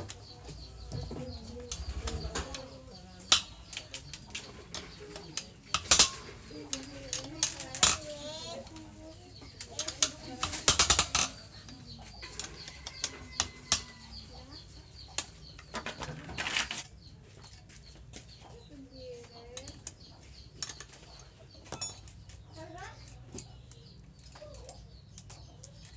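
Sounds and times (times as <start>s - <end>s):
tools and metal parts clinking: 1.2s - 8.9s, 9.5s - 14.0s, 15.6s - 16.9s, 20.6s - 22.2s.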